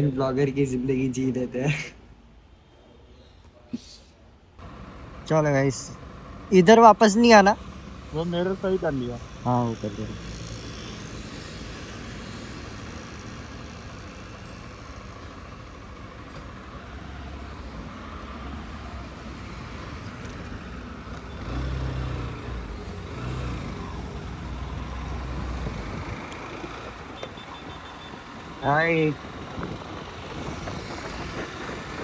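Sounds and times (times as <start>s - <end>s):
road noise: 0.0s - 32.0s
wind noise: 24.9s - 32.0s.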